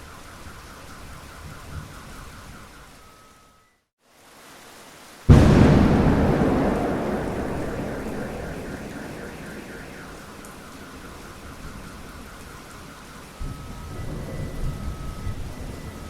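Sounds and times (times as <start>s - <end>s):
steady rain falling: 4.0s - 16.0s
thunder rumbling: 5.3s - 12.4s.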